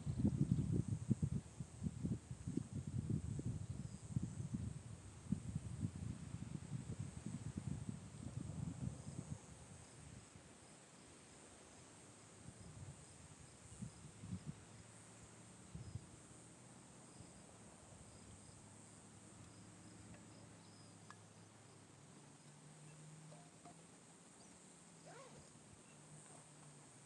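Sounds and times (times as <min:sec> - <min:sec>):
insect chorus chirring: 0:17.1 - 0:27.0.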